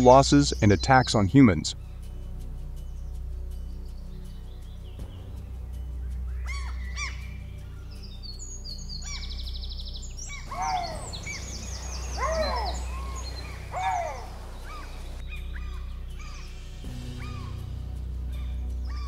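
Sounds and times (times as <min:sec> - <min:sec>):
birds chirping: 0:00.0 - 0:02.1, 0:02.8 - 0:16.6
low background music: 0:00.0 - 0:19.0
rising and falling bird calls: 0:07.9 - 0:16.5
fast high bird trill: 0:10.2 - 0:16.5.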